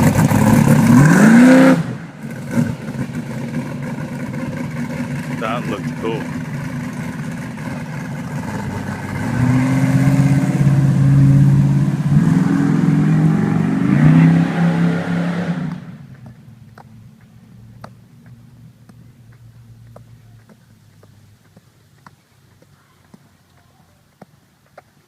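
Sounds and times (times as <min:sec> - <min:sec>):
engine revving loudly: 0:00.0 - 0:04.4, 0:05.2 - 0:16.0.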